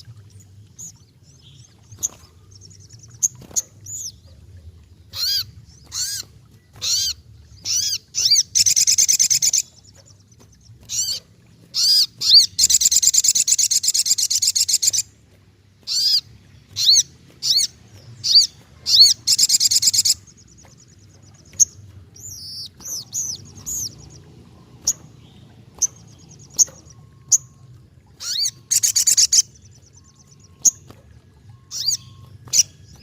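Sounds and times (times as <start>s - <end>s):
songbird chirping: 0.0s - 33.0s
bird rattling trill: 16.8s - 20.2s.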